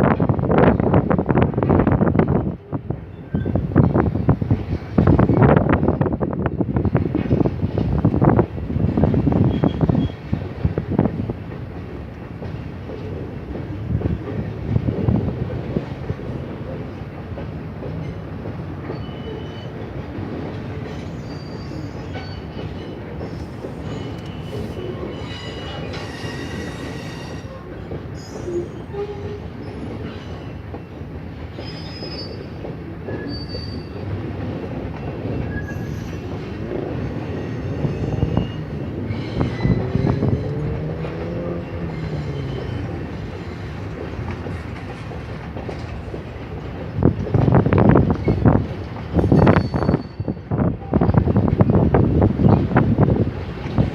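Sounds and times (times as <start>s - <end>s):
freight train rumbling past: 0.0s - 53.9s
train wheels squealing: 3.0s - 4.0s, 9.4s - 10.3s, 18.8s - 19.8s, 20.8s - 34.2s, 34.9s - 44.8s, 49.1s - 51.3s.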